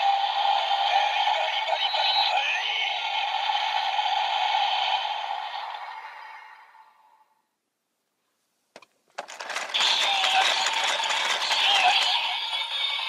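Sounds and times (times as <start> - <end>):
tinny electronic music from toy speaker: 0.0 - 6.6, 9.2 - 13.0.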